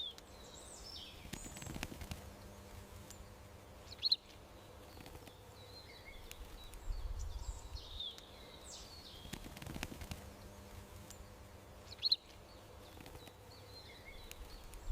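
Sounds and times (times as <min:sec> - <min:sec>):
faint clicks: 0:00.0 - 0:00.4, 0:01.2 - 0:03.3, 0:04.3 - 0:05.5, 0:06.1 - 0:07.0, 0:08.0 - 0:14.9
small birds chirping: 0:00.0 - 0:14.9.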